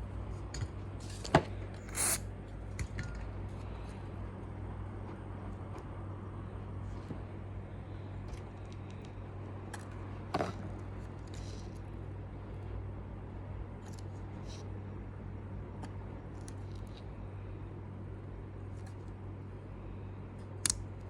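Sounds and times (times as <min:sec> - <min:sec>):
low mains hum: 0:00.0 - 0:21.0
scrape: 0:01.8 - 0:02.2.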